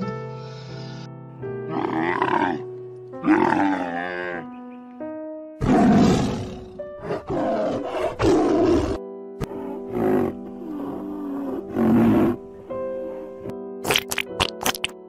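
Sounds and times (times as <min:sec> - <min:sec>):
background music with held notes: 0:00.0 - 0:15.0
camel groaning call: 0:03.2 - 0:04.4
tiger roaring: 0:03.2 - 0:04.4, 0:05.6 - 0:12.4.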